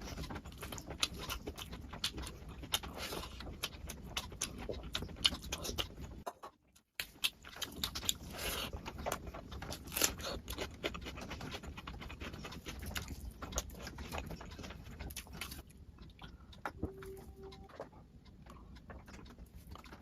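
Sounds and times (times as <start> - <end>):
wet chewing and lip-smacking: 0.0 - 20.0
steady low hum: 7.0 - 20.0.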